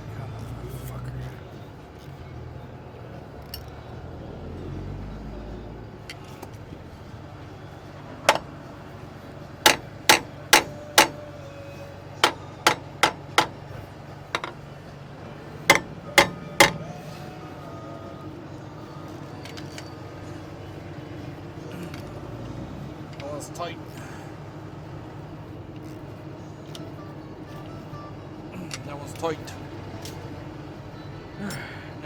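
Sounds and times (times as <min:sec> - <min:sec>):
hammer striking metal: 0:08.3 - 0:08.6, 0:09.6 - 0:11.3, 0:12.2 - 0:13.8, 0:14.4 - 0:14.6, 0:15.7 - 0:17.0.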